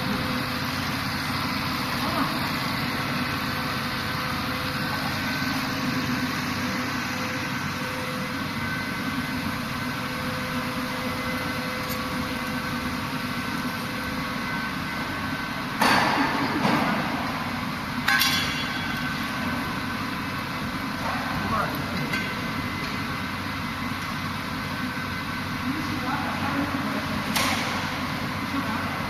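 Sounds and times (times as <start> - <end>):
machinery humming: 0.0 - 29.0.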